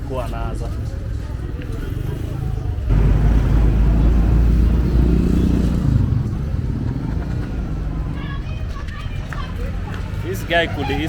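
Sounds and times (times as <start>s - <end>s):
vehicle engine running: 2.5s - 11.0s.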